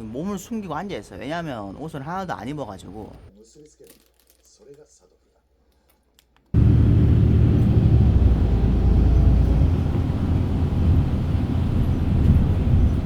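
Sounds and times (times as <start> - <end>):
vehicle engine rumbling: 6.6 - 13.0.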